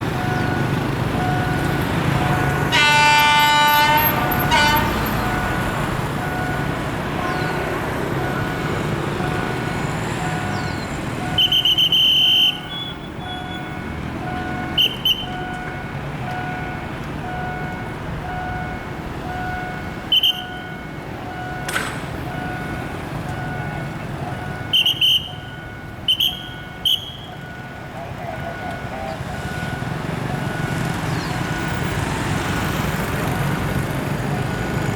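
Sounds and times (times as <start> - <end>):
locomotive engine running: 0.0 - 11.8
locomotive horn blasts: 2.4 - 5.7, 11.3 - 13.7, 20.1 - 20.7, 24.5 - 27.5
high whistle blasts: 11.2 - 13.6, 14.8 - 15.4, 20.1 - 20.7, 24.6 - 27.4.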